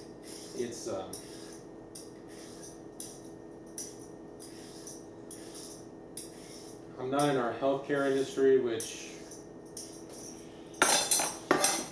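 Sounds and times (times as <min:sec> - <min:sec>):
steady low hum: 0:00.0 - 0:11.9
utensil scraping produce: 0:00.2 - 0:01.6, 0:04.4 - 0:09.4.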